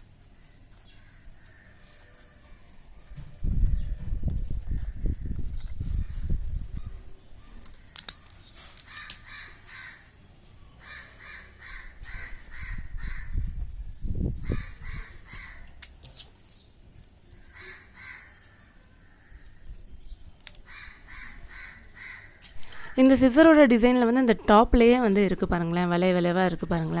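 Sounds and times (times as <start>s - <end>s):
crows cawing: 0.9s - 2.1s, 8.8s - 10.2s, 10.8s - 13.4s, 14.4s - 15.8s, 17.4s - 19.7s, 20.6s - 23.0s.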